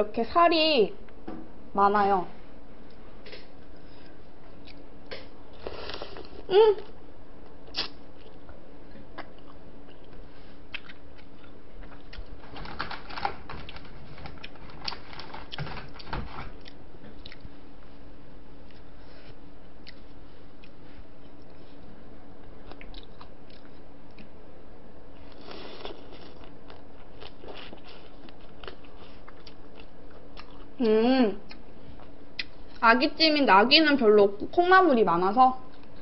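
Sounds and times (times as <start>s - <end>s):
person humming: 6.4s - 7.0s, 30.8s - 31.4s
chewing and crunching food: 7.4s - 17.6s, 18.6s - 24.4s, 25.2s - 30.8s, 35.6s - 36.0s.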